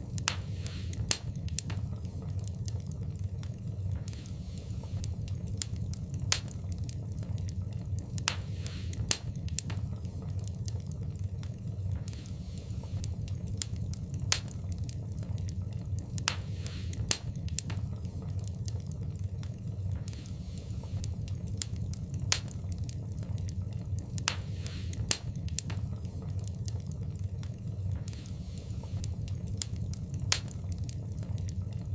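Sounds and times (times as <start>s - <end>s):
fire crackles and pops: 0.0s - 31.9s
fire hissing: 0.0s - 31.9s
low rumble of flames: 0.0s - 31.9s.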